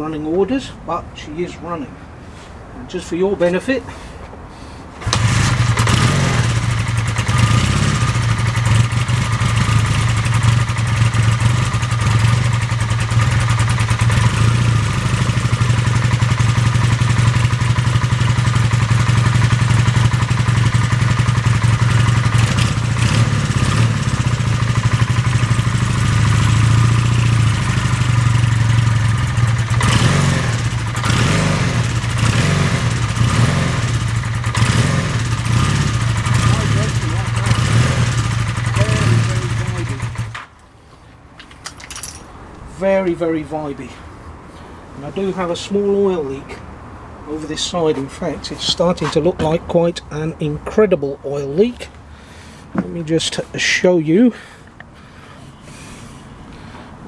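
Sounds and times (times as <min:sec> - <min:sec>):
motorcycle engine idling: 0:05.0 - 0:40.4.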